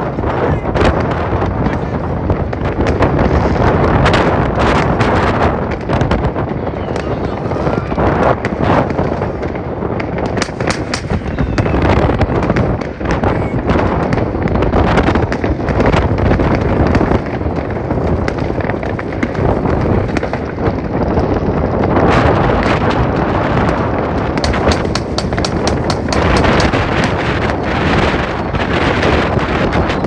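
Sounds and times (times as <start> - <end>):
fireworks bangs and crackling: 0.0 - 30.0
sharp firecracker cracks: 8.0 - 20.8, 22.6 - 29.9.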